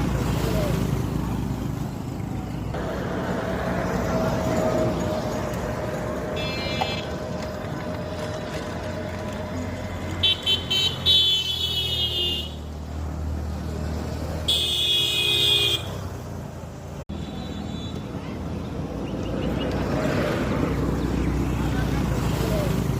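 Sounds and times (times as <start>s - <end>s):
low engine rumble: 0.0s - 10.8s
vehicle horns honking: 6.4s - 7.2s, 10.2s - 12.7s, 14.4s - 16.1s.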